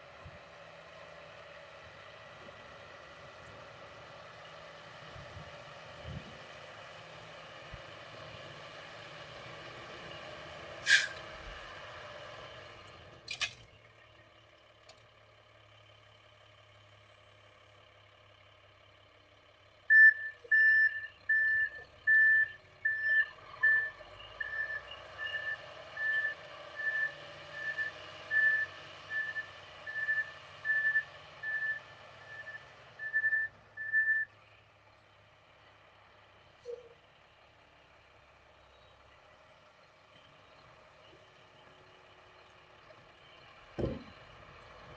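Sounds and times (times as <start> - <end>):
reversing alarm beeping: 19.9 - 34.3.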